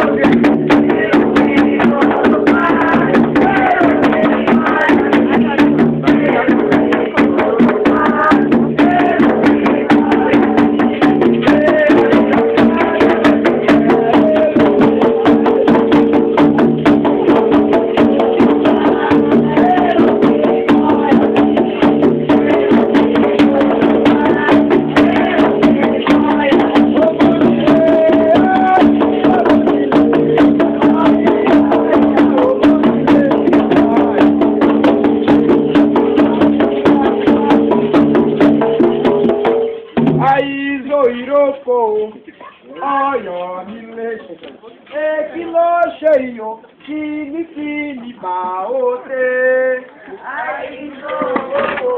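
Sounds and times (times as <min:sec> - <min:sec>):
hand drums: 0:00.0 - 0:41.4
people singing: 0:00.0 - 0:51.9
shakers: 0:00.0 - 0:51.9.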